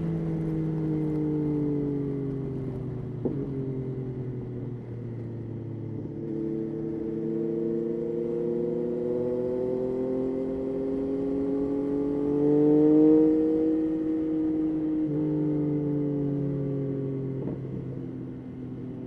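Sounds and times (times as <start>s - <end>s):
motorcycle engine accelerating: 5.8s - 18.8s.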